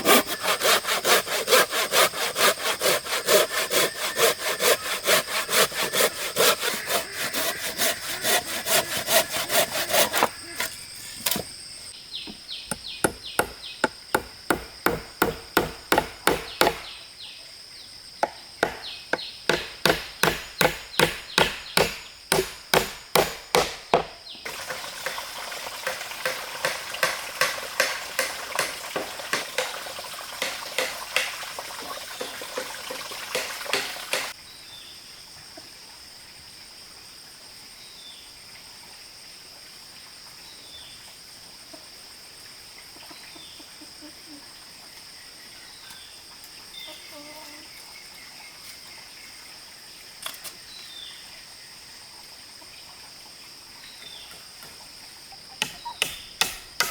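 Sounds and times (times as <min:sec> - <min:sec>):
hand saw cutting wood: 0:00.0 - 0:11.5, 0:12.7 - 0:16.9, 0:18.6 - 0:25.2, 0:25.8 - 0:31.4, 0:32.2 - 0:34.4, 0:55.6 - 0:56.9
insects buzzing: 0:00.0 - 0:56.9.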